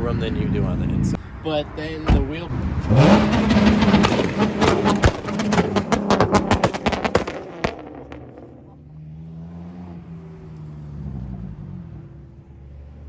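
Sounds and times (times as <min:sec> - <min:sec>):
car engine running: 0:02.7 - 0:12.5
sharp clicks and pops: 0:03.8 - 0:08.3.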